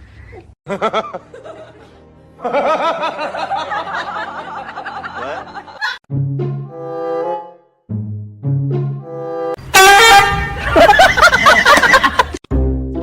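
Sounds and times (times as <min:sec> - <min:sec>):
laughing voices: 0:00.4 - 0:06.0, 0:10.4 - 0:12.4
horn-like honk: 0:09.0 - 0:12.0.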